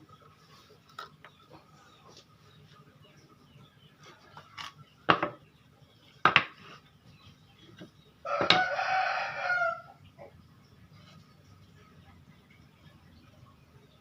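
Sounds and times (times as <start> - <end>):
wood knocks: 5.1 - 5.4, 6.2 - 6.6
rooster crowing: 8.2 - 10.0.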